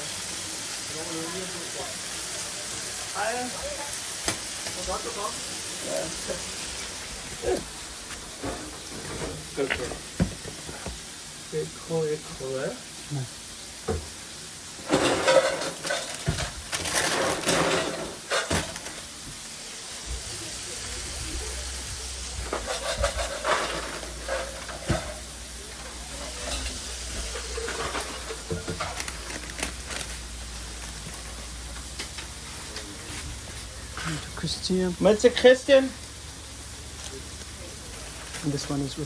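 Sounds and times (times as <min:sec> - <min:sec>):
food sizzling in a pan: 0:00.0 - 0:39.0
metal utensils clattering on pans: 0:07.4 - 0:10.8, 0:14.8 - 0:19.2, 0:22.2 - 0:29.9.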